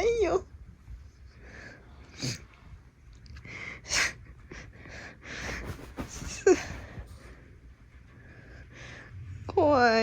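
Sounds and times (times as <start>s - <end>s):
rustling of crinkly comforter: 5.4s - 7.4s.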